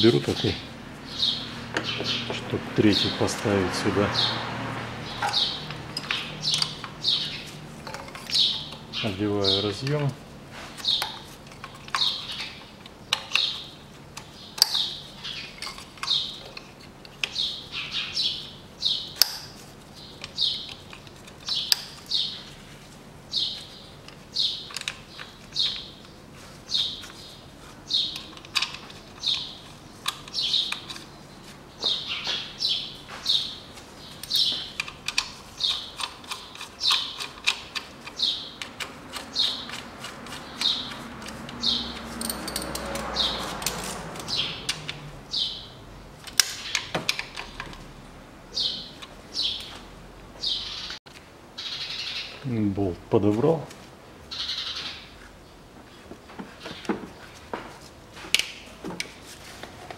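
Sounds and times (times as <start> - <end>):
small bird chirping: 5.0 - 9.7, 10.8 - 16.6, 17.2 - 19.3, 19.9 - 22.6, 23.3 - 43.6, 44.2 - 45.8, 48.5 - 49.8, 50.4 - 51.0, 51.6 - 52.5, 54.3 - 56.0
clicks and taps from tools: 34.2 - 45.0.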